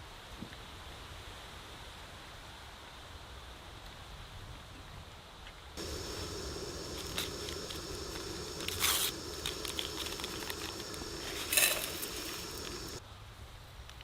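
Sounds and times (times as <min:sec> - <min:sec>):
steady low hum: 0:05.8 - 0:13.0
crinkling rustles: 0:06.8 - 0:13.0.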